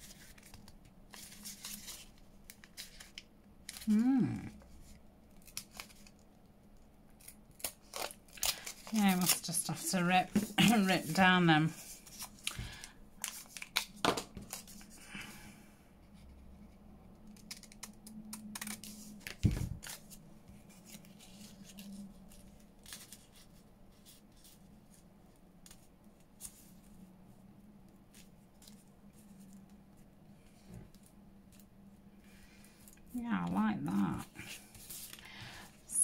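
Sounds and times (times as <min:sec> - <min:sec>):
paper tearing: 0:17.3 - 0:20.1.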